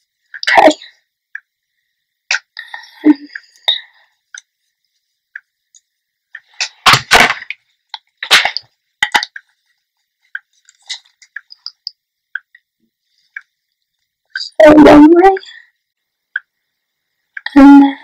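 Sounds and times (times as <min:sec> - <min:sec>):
small ticks and rustles: 0:07.6 - 0:14.6.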